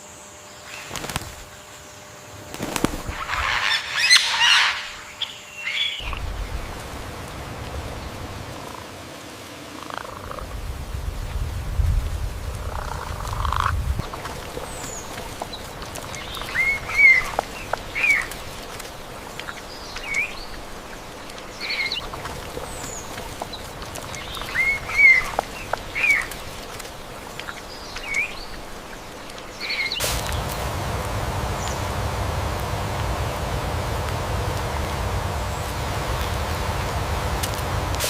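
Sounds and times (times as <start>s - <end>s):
peafowl calling: 3.0s - 6.8s, 12.6s - 37.9s
steady rushing noise: 6.0s - 38.0s.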